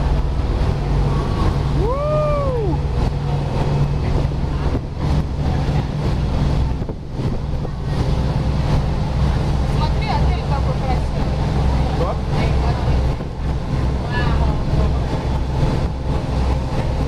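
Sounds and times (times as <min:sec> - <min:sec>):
wind noise: 0:00.0 - 0:10.0
boat engine droning: 0:00.0 - 0:17.0
rushing water: 0:00.0 - 0:17.0.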